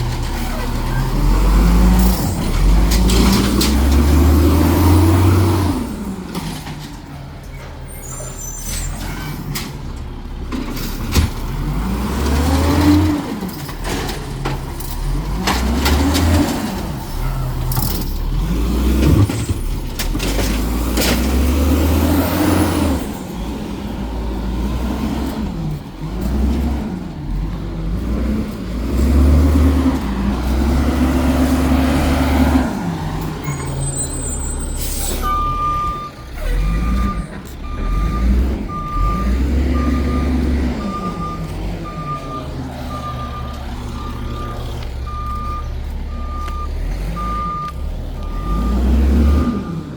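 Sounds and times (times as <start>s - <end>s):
hydraulic packer compacting trash: 0.0s - 27.5s
diesel engine revving: 0.0s - 49.9s
reversing alarm beeping: 33.4s - 49.9s.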